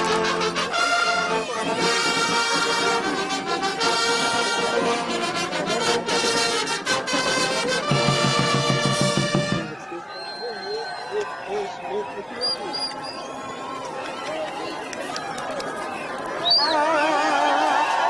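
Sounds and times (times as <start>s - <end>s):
brass band music: 0.0s - 9.9s.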